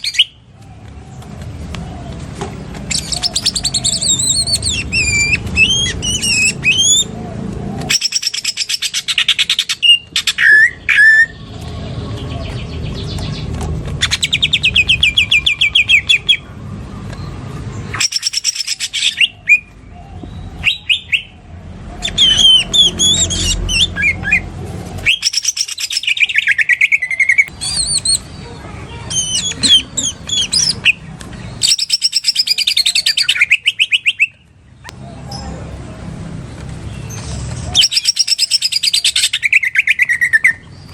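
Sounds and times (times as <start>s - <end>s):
bird singing rattling trills: 2.9s - 7.1s, 7.9s - 16.5s, 17.2s - 21.4s, 25.0s - 35.6s, 36.8s - 40.9s.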